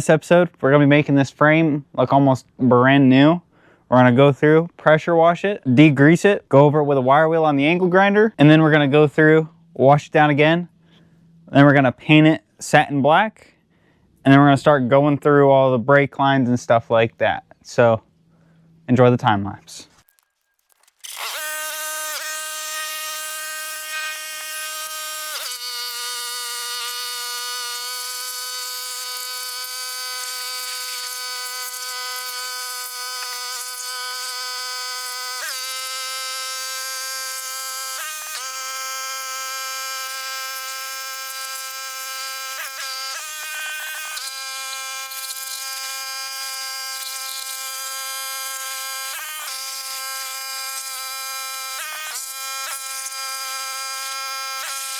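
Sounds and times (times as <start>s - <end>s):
high-pitched power tool buzz: 20.1s - 54.9s.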